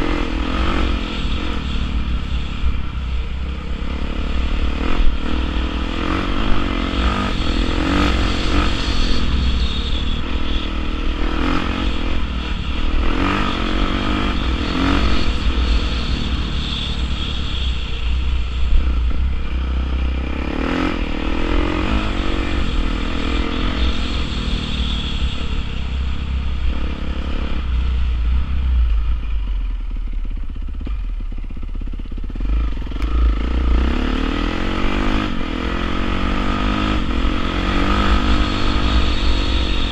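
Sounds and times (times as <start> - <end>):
dirt bike engine revving: 0.0 - 28.5, 32.2 - 39.9.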